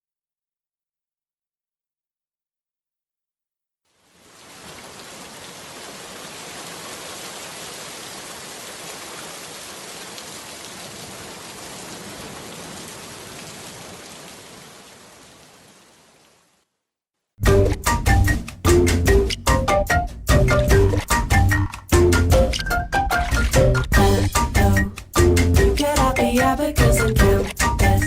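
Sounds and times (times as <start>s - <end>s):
steady rain falling: 3.9s - 16.8s.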